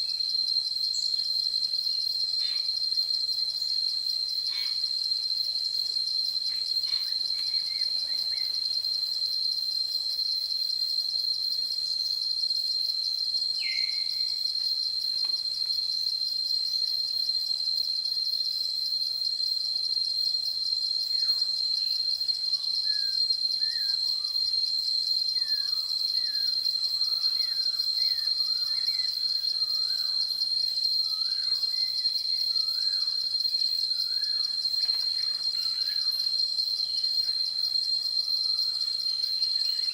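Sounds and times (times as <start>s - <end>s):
insect chorus trilling: 0.0s - 39.9s.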